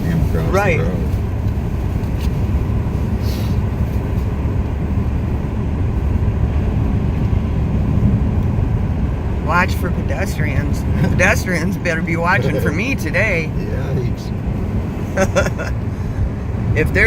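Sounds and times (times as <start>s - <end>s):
car interior rumble: 0.0s - 17.0s
brief hiss: 3.2s - 3.6s.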